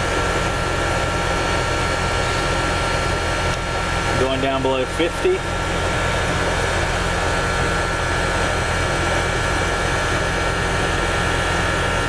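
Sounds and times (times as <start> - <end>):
air conditioner compressor humming: 0.0 - 12.0.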